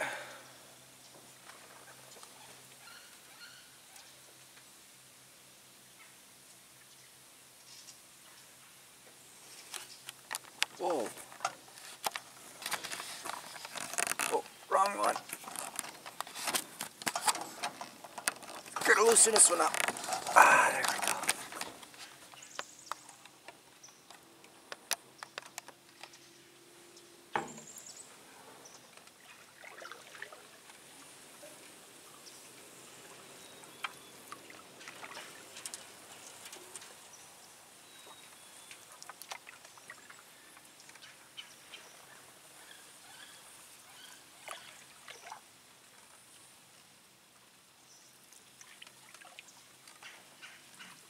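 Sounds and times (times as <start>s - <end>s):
canoe paddle dipping into water: 9.7s - 23.2s, 28.7s - 31.8s, 32.5s - 37.1s, 37.9s - 41.2s, 44.4s - 46.3s, 48.4s - 51.0s
water dripping and trickling: 28.7s - 37.2s, 37.8s - 41.8s, 44.4s - 46.5s, 48.2s - 51.0s.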